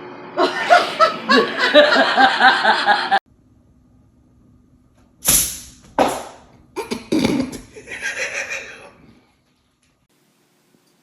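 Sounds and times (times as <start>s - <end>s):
person laughing hard: 0.4s - 3.2s, 7.6s - 9.0s.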